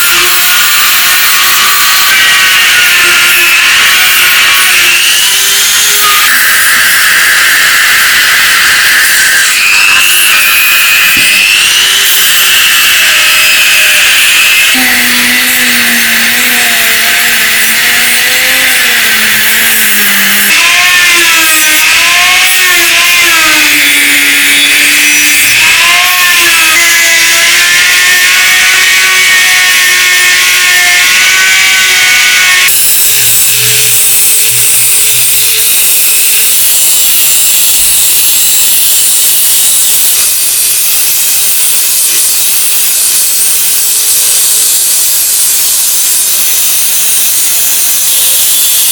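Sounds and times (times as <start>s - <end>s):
power tool grinding hiss: 0.0s - 48.9s
motor whine: 2.4s - 29.1s.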